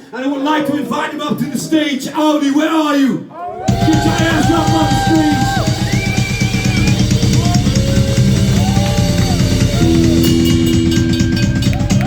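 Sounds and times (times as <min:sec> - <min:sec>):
drum kit beating: 0:03.6 - 0:12.0
rock band playing: 0:03.7 - 0:12.0.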